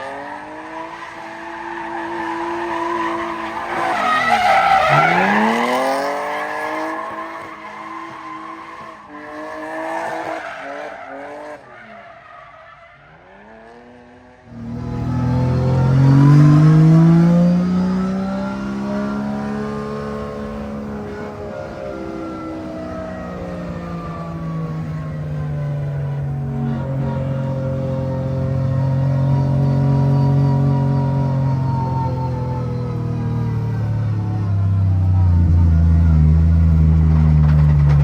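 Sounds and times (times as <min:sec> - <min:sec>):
car engine revving hard: 0:13.7 - 0:34.4.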